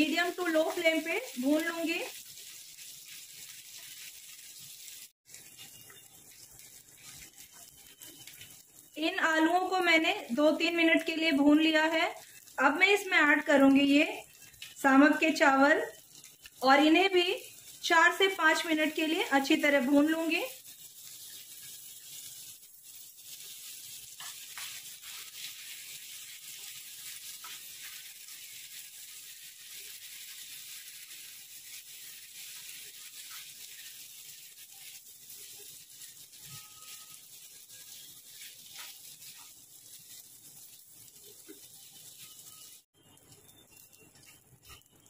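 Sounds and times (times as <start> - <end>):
rice sizzling in a pan: 0.0 - 45.0
spatula scraping and tapping pan: 20.6 - 28.8, 34.8 - 42.7, 43.4 - 45.0.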